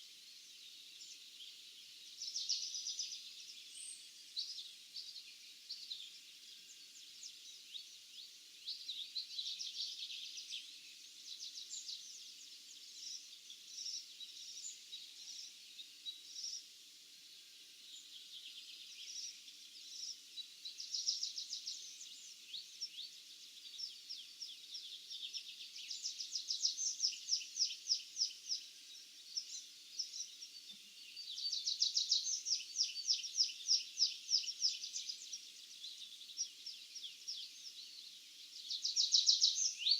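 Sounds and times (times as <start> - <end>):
birds chirping and trilling: 17.3 - 39.9.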